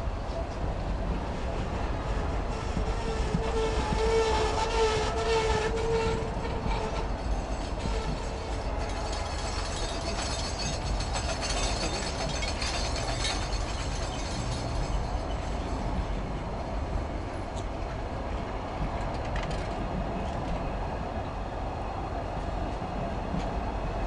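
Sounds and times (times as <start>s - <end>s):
train wheels rumbling on rails: 0.0s - 24.0s
rapid clicking of wheels: 6.5s - 16.1s.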